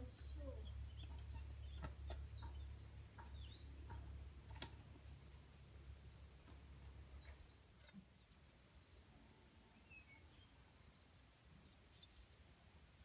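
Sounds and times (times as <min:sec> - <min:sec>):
faint bird chirps: 0:00.0 - 0:04.0
steady low hum: 0:00.0 - 0:09.8
sharp clicks: 0:03.2 - 0:04.8.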